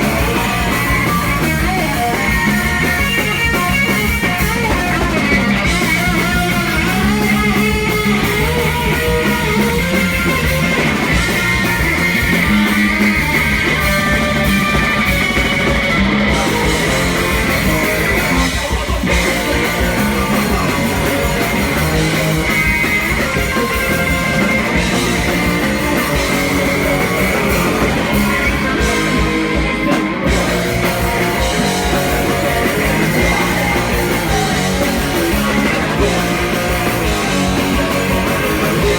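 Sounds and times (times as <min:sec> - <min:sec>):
drums: 0:00.0 - 0:38.9
electric guitars: 0:00.0 - 0:38.9
person singing: 0:16.2 - 0:38.9.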